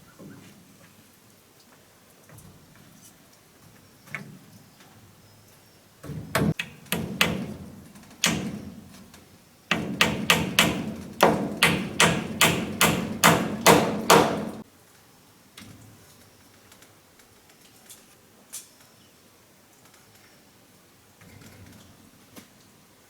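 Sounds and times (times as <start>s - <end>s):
hand tool striking wood: 6.1s - 9.1s, 9.7s - 14.6s.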